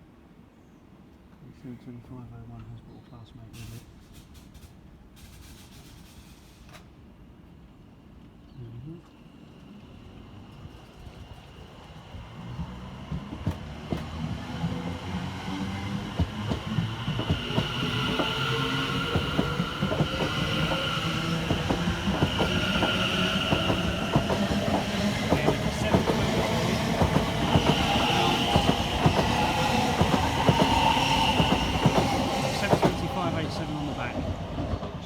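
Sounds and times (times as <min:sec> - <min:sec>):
train low rumble: 0:00.9 - 0:35.0
train high steady whine: 0:03.7 - 0:35.0
train wheels clicking over rail joints: 0:12.4 - 0:14.9, 0:15.5 - 0:35.0.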